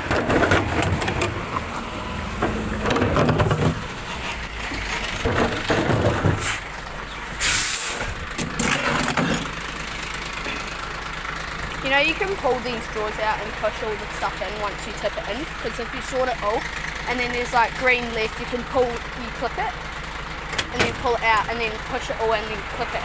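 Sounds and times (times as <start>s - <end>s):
clunks and rattles: 0.0s - 11.8s, 19.9s - 21.4s
truck diesel engine running: 0.0s - 23.0s
air hiss: 7.4s - 8.1s.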